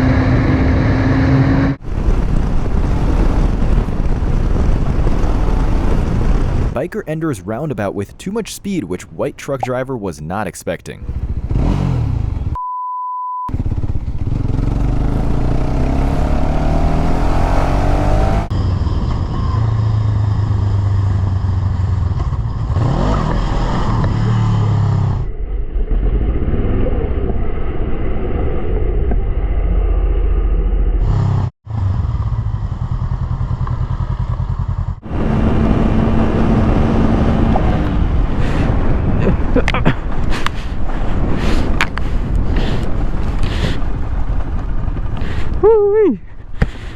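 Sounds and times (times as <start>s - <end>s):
wind noise: 1.4s - 6.8s, 35.1s - 46.9s
steady beep: 7.0s - 11.0s
motorcycle engines revving: 11.0s - 12.6s, 13.6s - 25.2s, 31.1s - 45.6s.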